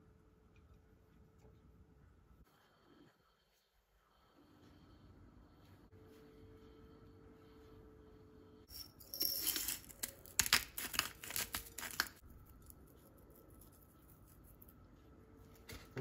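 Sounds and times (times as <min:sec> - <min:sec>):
crinkling and tearing: 0:09.9 - 0:12.2.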